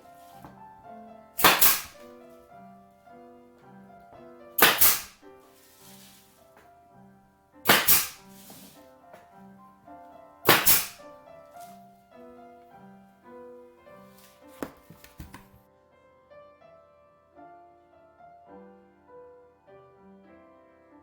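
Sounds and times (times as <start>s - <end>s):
piano music: 0.0s - 21.0s
flooring nailer bang: 1.4s - 2.1s, 4.6s - 5.2s, 7.6s - 8.8s, 10.5s - 11.0s
light knocks on wood: 14.6s - 15.6s.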